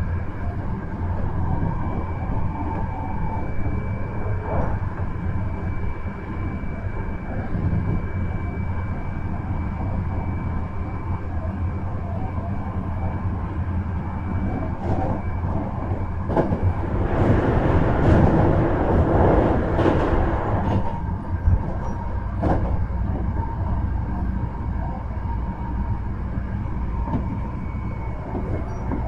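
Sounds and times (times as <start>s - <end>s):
faint train whine: 0.0s - 29.0s
rail joint clicks: 2.5s - 5.7s, 14.4s - 25.0s, 26.8s - 29.0s
train wheels rumbling: 13.3s - 29.0s.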